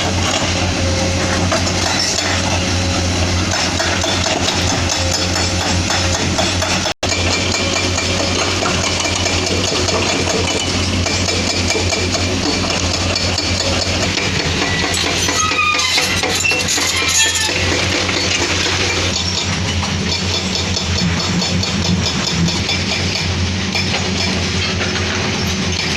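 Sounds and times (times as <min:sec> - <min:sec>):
diesel engine running under load: 0:00.0 - 0:25.9
metallic squeaks and clinks: 0:14.6 - 0:20.7.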